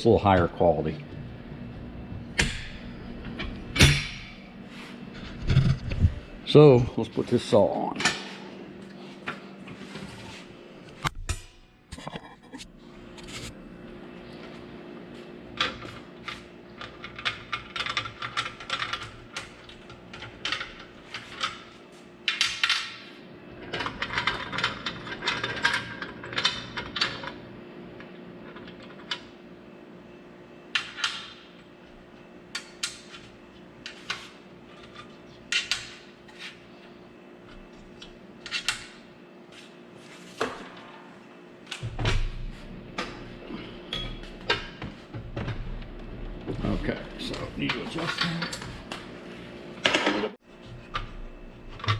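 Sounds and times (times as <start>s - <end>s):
steady hum: 0.0s - 51.9s.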